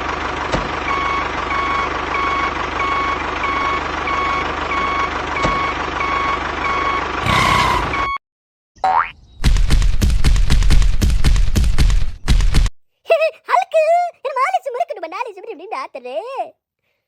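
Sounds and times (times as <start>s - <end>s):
reversing alarm beeping: 0.9s - 8.2s.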